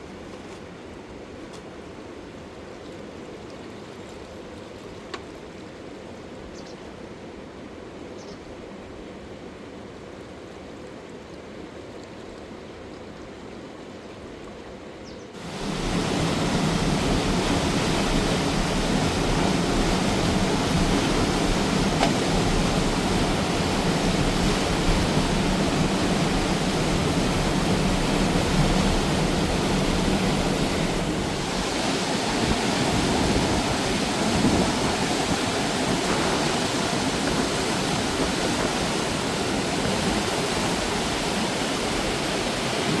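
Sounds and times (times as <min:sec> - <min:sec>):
river water rushing over rocks: 0:15.4 - 0:43.0.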